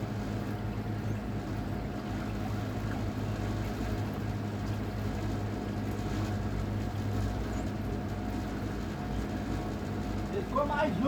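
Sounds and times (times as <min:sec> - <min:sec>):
water and wind noise: 0:00.0 - 0:11.0.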